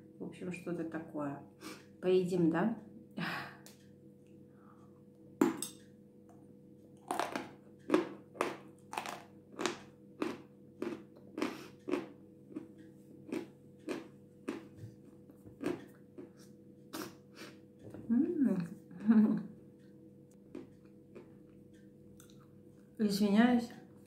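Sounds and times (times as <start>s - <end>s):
crunchy chewing: 7.0s - 17.2s, 20.3s - 22.5s.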